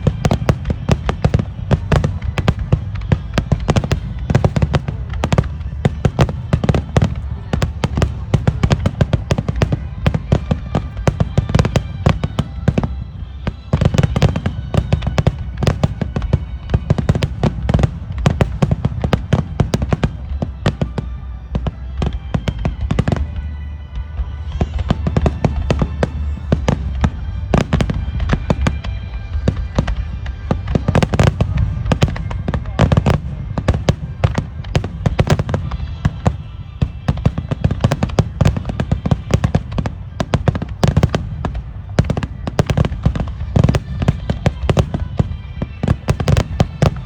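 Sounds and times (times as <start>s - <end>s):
fireworks bursting: 0.0s - 47.0s
music playing: 0.0s - 47.0s.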